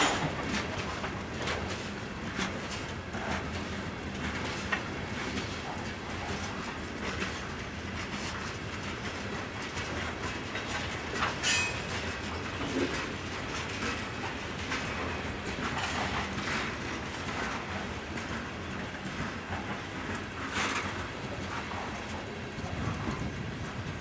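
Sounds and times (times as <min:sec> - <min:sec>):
train rumbling on rails: 0:00.0 - 0:24.0
wheels clicking over rail joints: 0:00.0 - 0:24.0.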